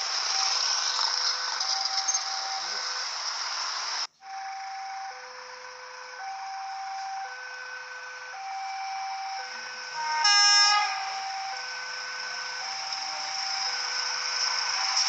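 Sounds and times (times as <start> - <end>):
two-tone crossing alarm: 0.0 - 15.0
locomotive horn: 6.2 - 13.4.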